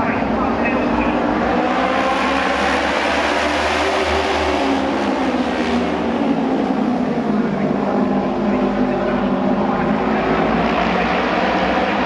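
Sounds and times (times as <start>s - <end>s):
racing motorcycle engines: 0.0s - 12.0s.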